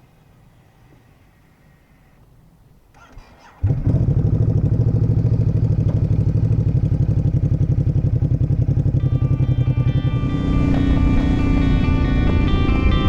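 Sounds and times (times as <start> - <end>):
motorcycle starter cranking: 2.9 - 12.6
motorcycle engine idling: 3.6 - 13.0.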